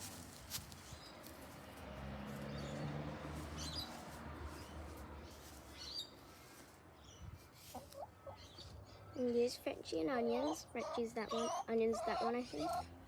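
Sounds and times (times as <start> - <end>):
young chickens chirping: 3.4 - 13.0.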